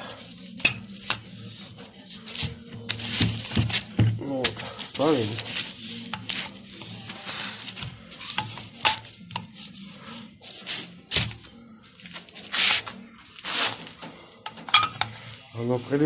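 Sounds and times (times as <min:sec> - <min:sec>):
metal sliding scrapes: 0:12.4 - 0:16.0.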